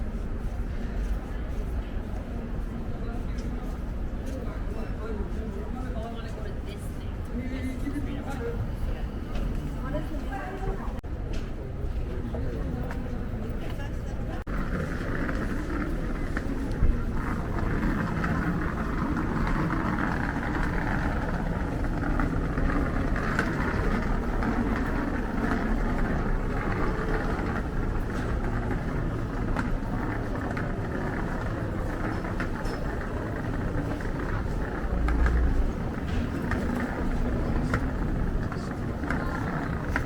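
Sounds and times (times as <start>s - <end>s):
traffic going by: 14.3s - 40.0s.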